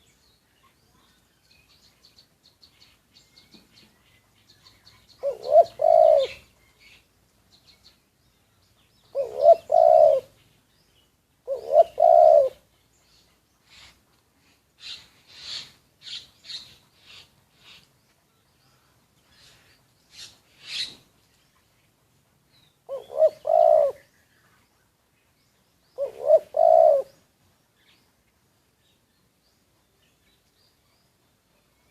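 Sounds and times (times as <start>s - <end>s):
small birds chirping: 0.0s - 31.9s
dove cooing: 5.2s - 6.6s, 9.1s - 10.4s, 11.4s - 12.7s, 22.9s - 24.1s, 26.0s - 27.2s.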